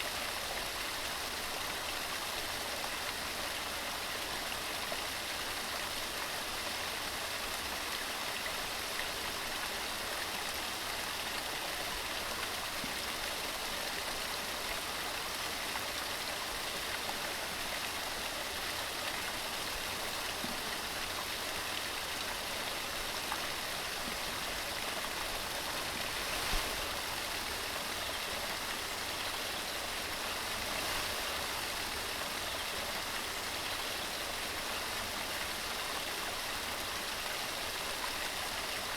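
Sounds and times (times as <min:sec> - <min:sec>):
water rushing over rocks: 0:18.9 - 0:33.6.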